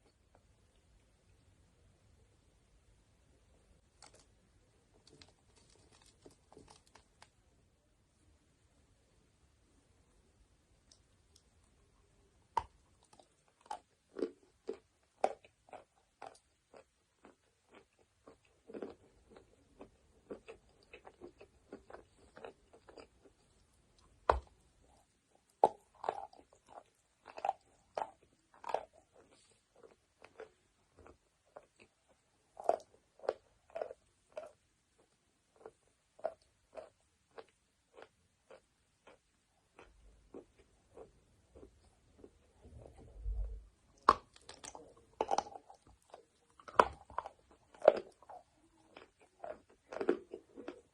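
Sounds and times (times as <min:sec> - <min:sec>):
crunchy chewing: 0:04.9 - 0:07.3, 0:12.6 - 0:50.9.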